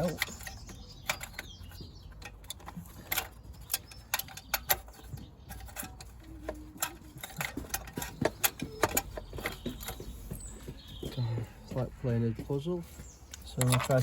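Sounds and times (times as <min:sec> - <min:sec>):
metal pipe clicks and knocks: 0:00.1 - 0:10.0.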